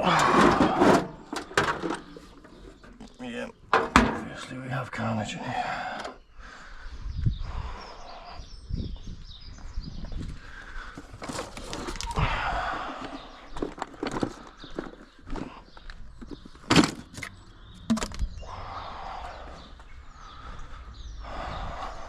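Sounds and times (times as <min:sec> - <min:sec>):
objects knocking and clattering: 0:00.0 - 0:04.4, 0:16.2 - 0:18.3.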